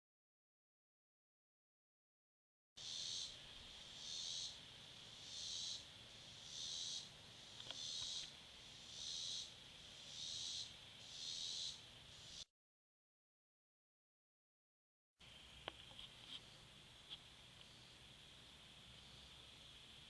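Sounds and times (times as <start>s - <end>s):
insects rasping: 2.8s - 12.4s.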